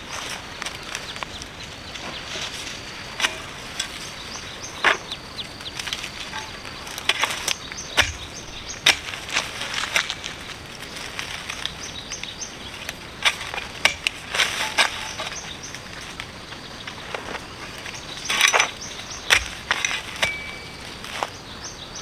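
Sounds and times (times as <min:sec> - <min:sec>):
sharp knocks and crackles: 0:02.0 - 0:21.4.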